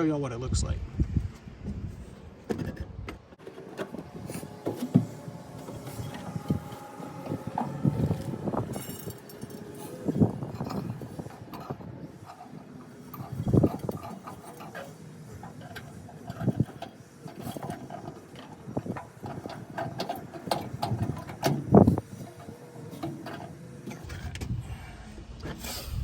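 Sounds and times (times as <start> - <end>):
metal clinks and knocks: 3.4 - 24.1.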